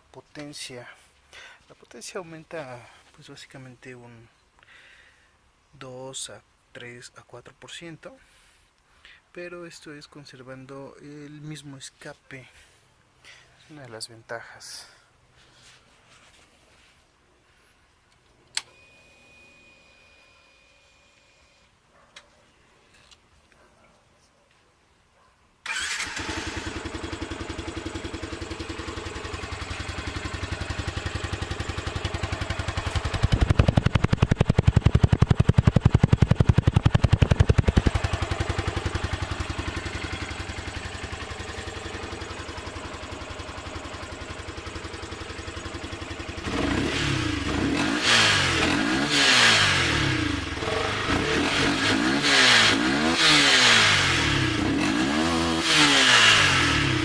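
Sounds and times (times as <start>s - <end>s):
motorcycle engine running and revving: 26.1s - 57.0s.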